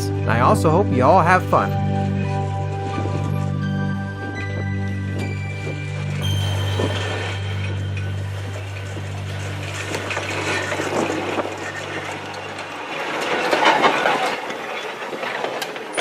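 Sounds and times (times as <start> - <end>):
low hum: 5.2 - 13.7
railway car rolling on track: 6.0 - 16.0
clicks of wheels on rails: 9.9 - 16.0.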